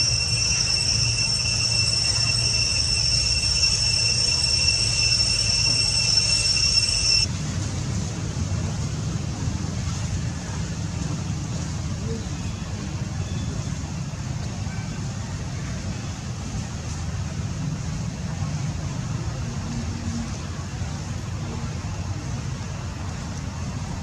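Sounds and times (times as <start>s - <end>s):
high-pitched drone: 0.0s - 7.3s.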